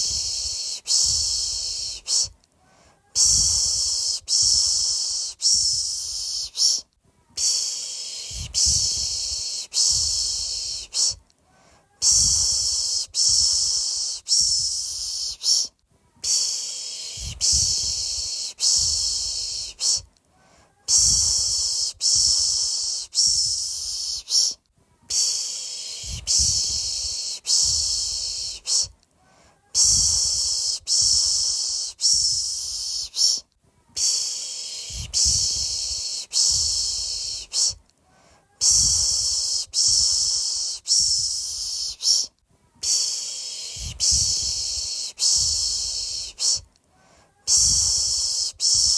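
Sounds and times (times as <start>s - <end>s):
person shushing: 0.0s - 11.2s, 11.8s - 28.9s, 29.5s - 37.8s, 38.4s - 46.7s, 47.3s - 48.9s.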